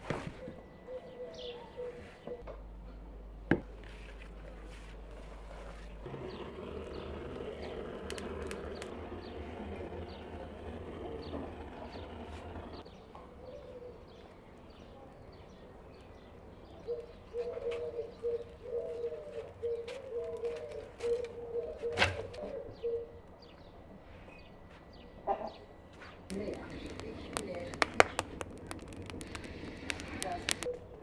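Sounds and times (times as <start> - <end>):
bird low call: 16.7 - 23.3.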